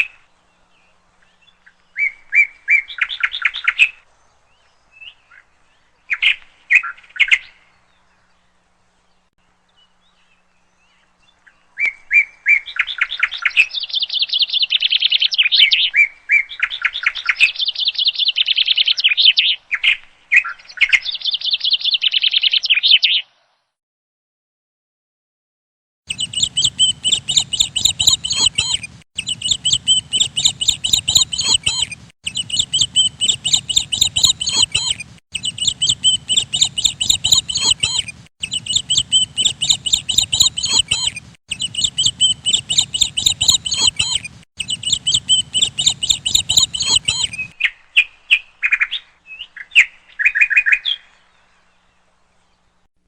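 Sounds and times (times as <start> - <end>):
small bird chirping: 26.1 - 51.1.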